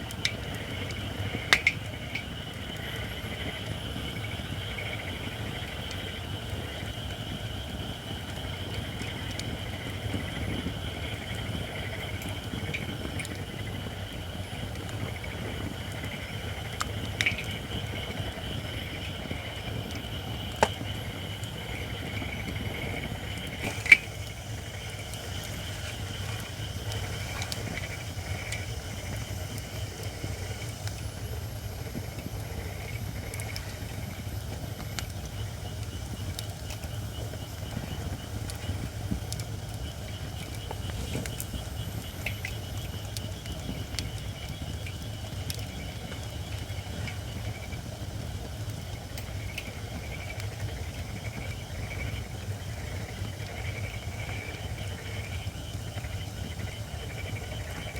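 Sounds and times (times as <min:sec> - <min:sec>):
wood popping: 0:00.0 - 0:02.3, 0:19.8 - 0:37.0
campfire crackling: 0:00.0 - 0:57.9
hiss from burning wood: 0:00.0 - 0:57.9.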